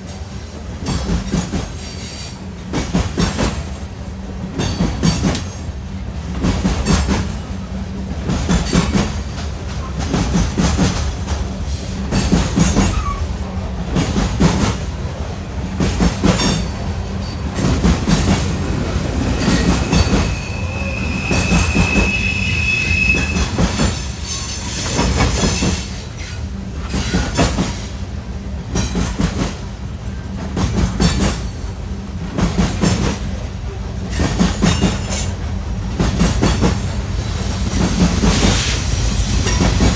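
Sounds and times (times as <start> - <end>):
train wheels clacking on rails: 0.0 - 39.9
high-pitched wheel squeal: 18.1 - 26.4.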